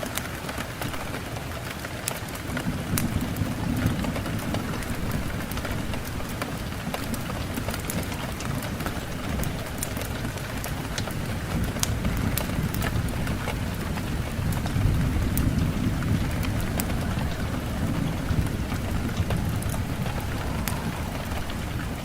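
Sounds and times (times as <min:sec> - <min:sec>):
raindrops ticking on a surface: 0:00.0 - 0:22.0
steady rain falling: 0:00.0 - 0:22.0
low rumble: 0:13.2 - 0:22.0.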